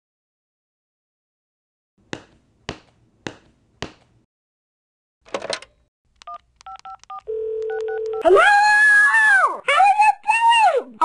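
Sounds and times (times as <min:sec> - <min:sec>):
telephone keypad beeps: 0:06.2 - 0:08.2.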